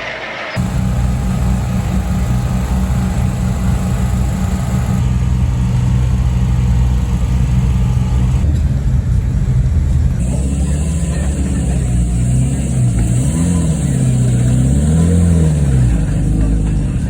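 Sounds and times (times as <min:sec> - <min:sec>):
car engine running: 0:00.6 - 0:17.0.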